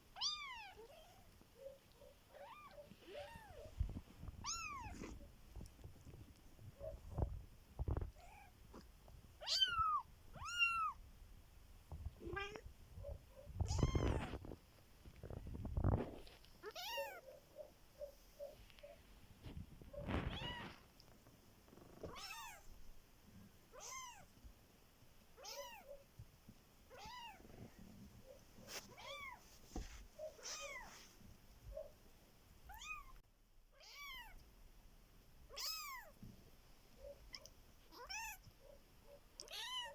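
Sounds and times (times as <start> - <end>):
kittens mewing: 0.2 - 5.3, 12.2 - 14.6, 16.6 - 19.0.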